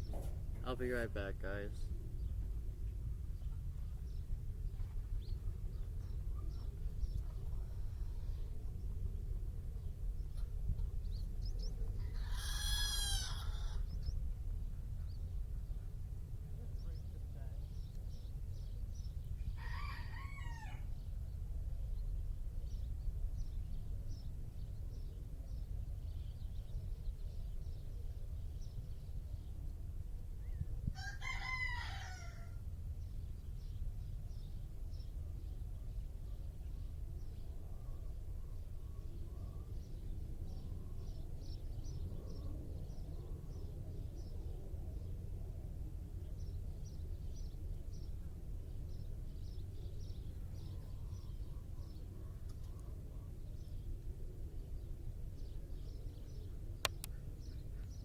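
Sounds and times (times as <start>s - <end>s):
steady low rumble: 0.0s - 19.6s
small birds chirping: 9.7s - 16.0s, 16.6s - 29.7s, 54.6s - 58.0s
loud bird call: 12.0s - 14.2s.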